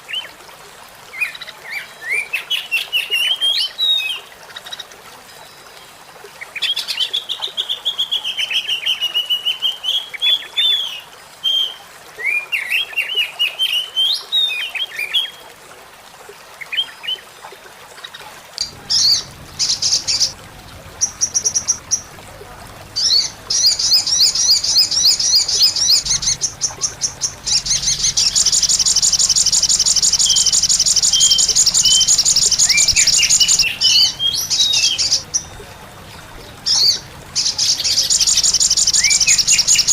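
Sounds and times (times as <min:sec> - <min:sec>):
bird buzzy high trills: 0:18.6 - 0:39.9
songbirds chirping and whistling: 0:18.6 - 0:39.9.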